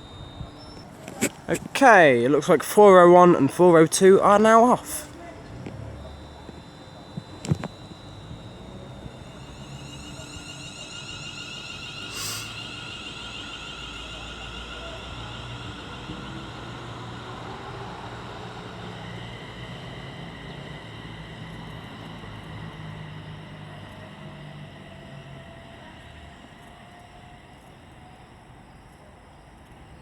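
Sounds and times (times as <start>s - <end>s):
electric train motors whining: 0.0s - 30.0s
brief hiss: 11.9s - 13.5s.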